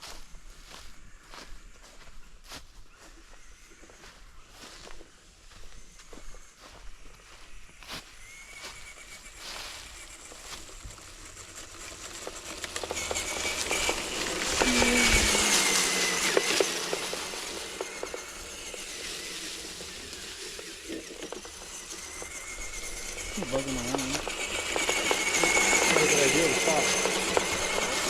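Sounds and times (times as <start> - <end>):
small electric motor whining: 2.4 - 28.0
tyres crackling over leaves: 6.6 - 28.0.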